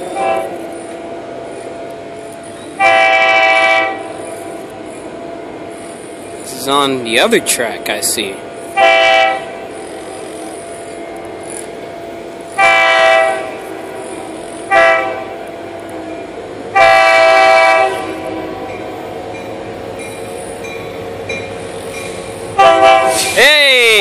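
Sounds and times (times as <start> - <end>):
train rumbling: 0.0 - 24.0
locomotive air horn blasts: 0.1 - 0.6, 2.8 - 4.1, 8.8 - 9.6, 12.6 - 13.6, 14.6 - 15.4, 16.7 - 18.6, 22.6 - 23.4.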